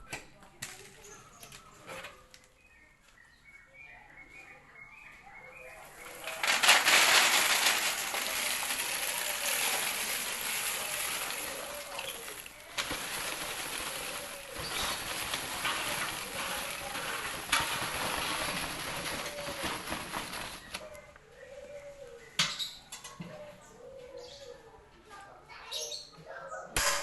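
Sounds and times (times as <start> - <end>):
mixing machine tumbling chips: 6.0 - 20.9.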